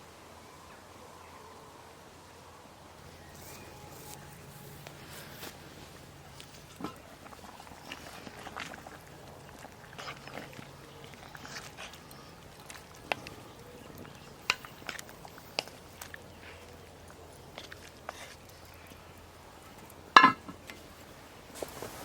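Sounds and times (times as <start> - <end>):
wood fire crackling: 3.0 - 22.0.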